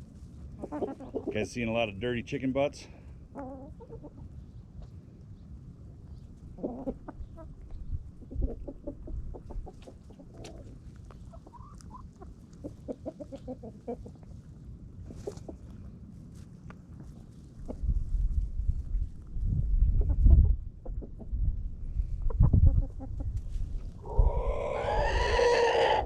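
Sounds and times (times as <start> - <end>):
hens clucking: 0.3 - 1.9, 2.5 - 5.0, 5.9 - 15.9, 16.9 - 18.0, 19.9 - 26.0
steady low rumble: 14.2 - 25.1.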